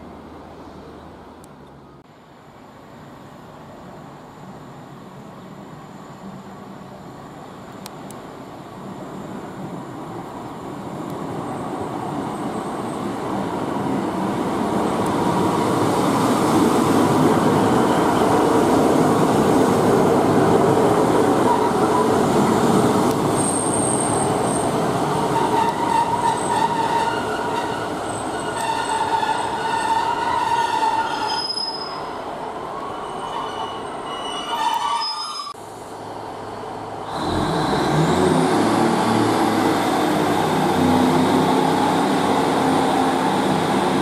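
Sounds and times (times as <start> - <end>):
diesel train rumble: 8.2 - 44.0
wheel and brake squeals: 25.3 - 32.2, 32.8 - 35.6.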